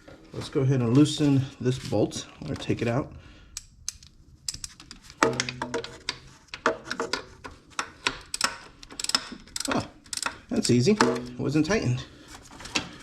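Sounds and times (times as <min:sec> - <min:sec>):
hand ratchet clicking: 0:07.8 - 0:11.3.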